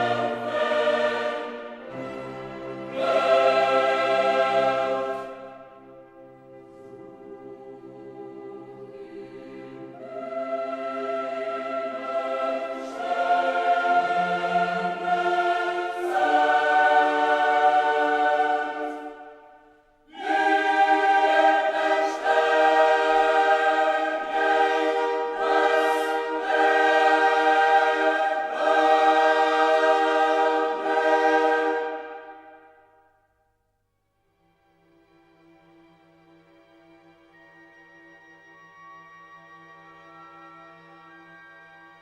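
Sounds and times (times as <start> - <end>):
choir singing held chords: 0.0 - 33.2.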